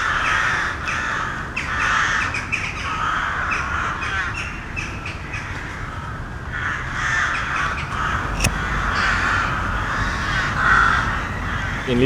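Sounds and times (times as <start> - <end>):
crows cawing: 7.9 - 12.0
sharp click: 7.9 - 12.0.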